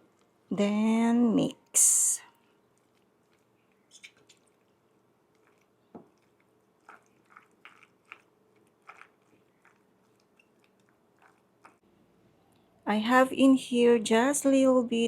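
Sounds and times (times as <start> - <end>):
wet squishing of salad mixing: 2.3 - 11.9.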